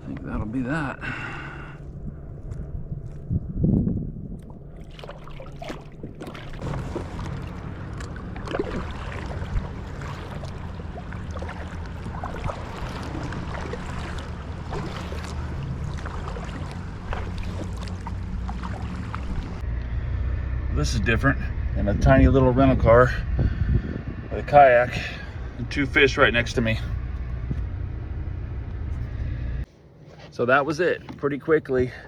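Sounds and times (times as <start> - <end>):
low rumble: 0.0 - 29.7
wind on microphone: 1.8 - 4.8, 21.0 - 26.7
water splashing against kayak: 4.4 - 19.6.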